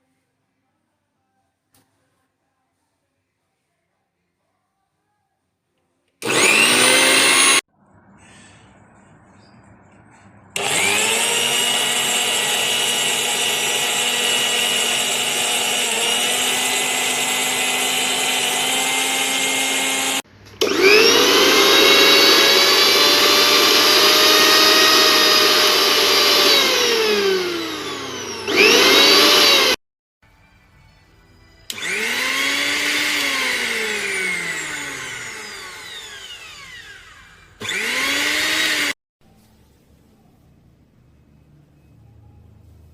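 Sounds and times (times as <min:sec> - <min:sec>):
mixer grinder motor whining: 0:06.2 - 0:07.6, 0:10.5 - 0:29.8, 0:31.7 - 0:39.0.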